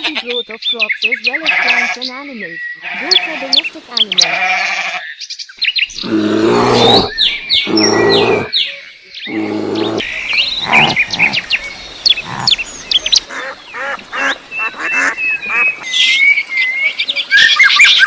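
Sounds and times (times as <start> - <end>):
birds chirping: 0.0 - 18.0
low long bird call: 5.9 - 16.2.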